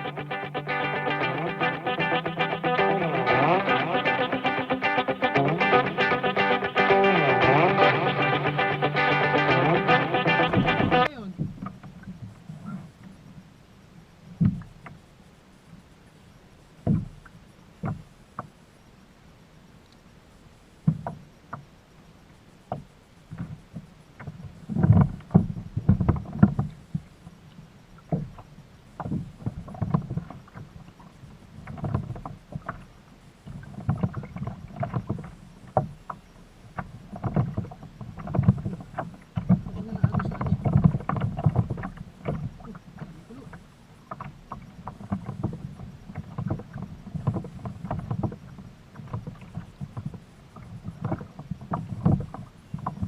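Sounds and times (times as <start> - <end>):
water sloshing against kayak hull: 36.7 - 53.0.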